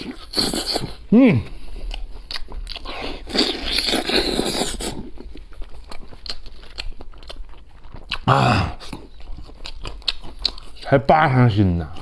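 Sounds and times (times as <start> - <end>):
chewing clicks: 1.8 - 10.9.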